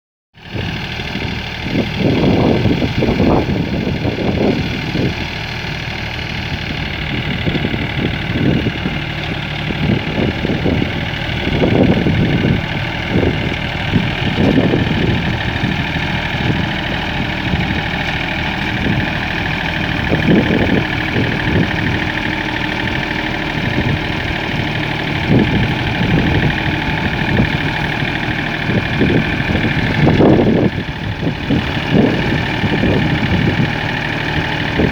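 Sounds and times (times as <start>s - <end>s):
tractor engine running: 0.4s - 34.9s
low surges and thumps: 9.6s - 33.8s.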